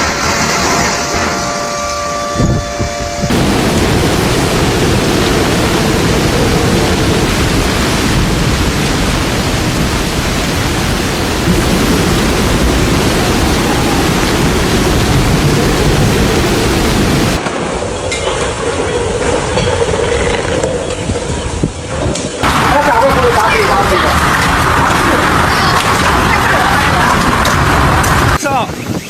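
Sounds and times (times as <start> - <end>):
turbulent water rushing: 3.3 - 17.4, 22.4 - 28.4.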